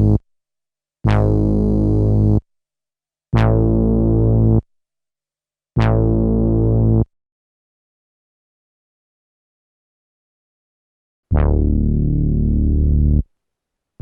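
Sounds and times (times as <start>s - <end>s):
sampled synthesizer note: 11.3s - 13.2s.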